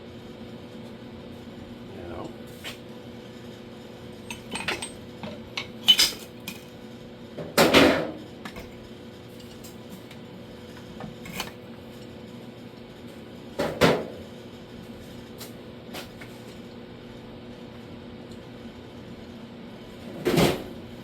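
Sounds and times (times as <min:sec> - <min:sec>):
metal tools clinking and clanking: 0:04.3 - 0:05.0, 0:05.8 - 0:06.6.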